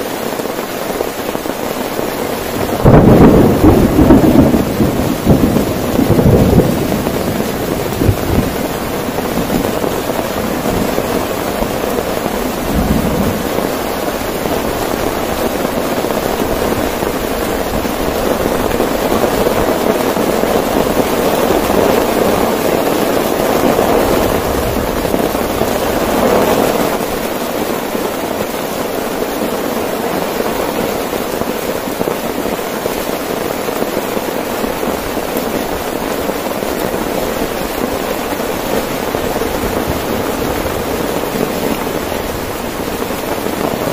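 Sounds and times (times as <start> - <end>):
heavy rain on a tent: 0.0 - 43.9
low rumble of thunder: 2.5 - 27.3.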